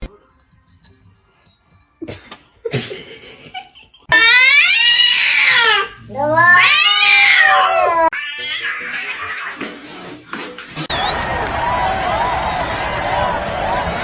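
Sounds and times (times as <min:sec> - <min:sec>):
cat meowing: 0:04.1 - 0:09.6.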